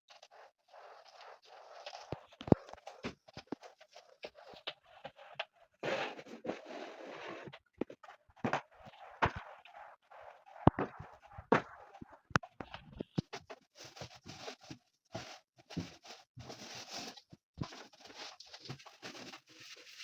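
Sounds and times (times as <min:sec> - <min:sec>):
rustling and wiping: 0:00.1 - 0:20.0
household objects knocking and clicking: 0:07.8 - 0:09.6, 0:10.7 - 0:13.4.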